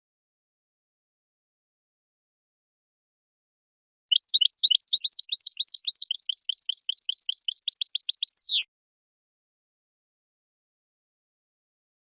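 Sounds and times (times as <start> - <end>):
goldfinch twittering song: 4.1 - 8.6.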